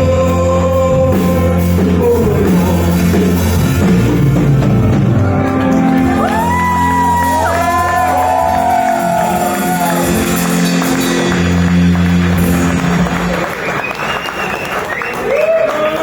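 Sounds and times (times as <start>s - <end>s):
live rock band playing: 0.0s - 15.4s
high bending guitar notes: 3.5s - 13.7s
crowd shouting and whooping: 5.7s - 16.0s.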